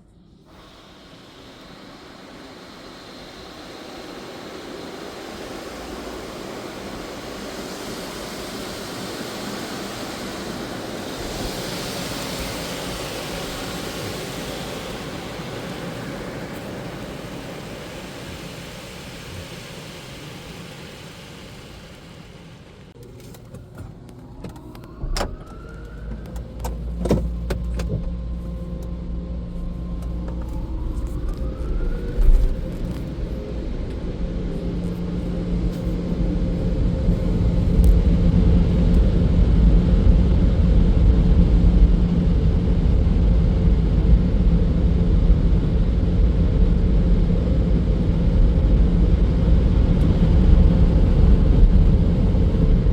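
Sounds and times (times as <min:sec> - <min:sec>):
low machinery drone: 0:00.0 - 0:52.9
short rising whines: 0:23.7 - 0:39.4.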